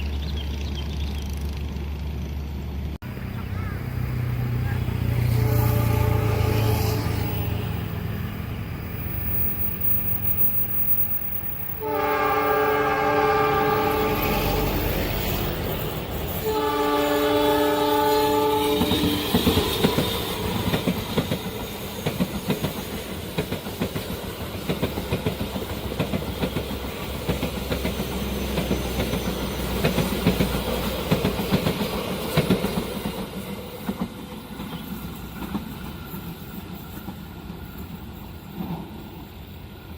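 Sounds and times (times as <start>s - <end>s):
train passing rumble: 0.0s - 39.9s
train horn blasts: 4.6s - 7.8s, 11.7s - 14.8s, 16.4s - 19.7s
wheels clicking over rail joints: 18.8s - 38.9s.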